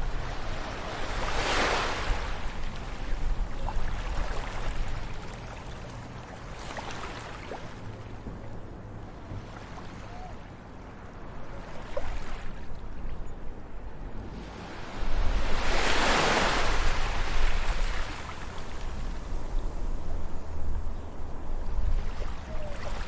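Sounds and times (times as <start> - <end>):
ocean waves breaking: 0.0 - 13.0, 13.8 - 23.0.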